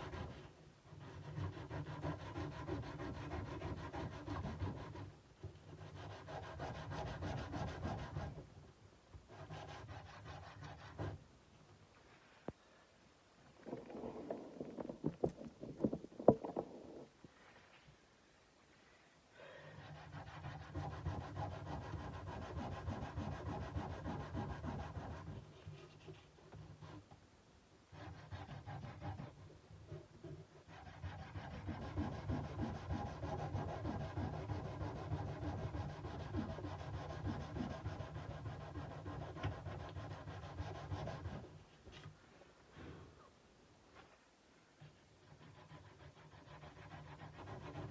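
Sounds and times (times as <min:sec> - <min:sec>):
sanding steel with abrasive paper: 0:45.3 - 0:47.9.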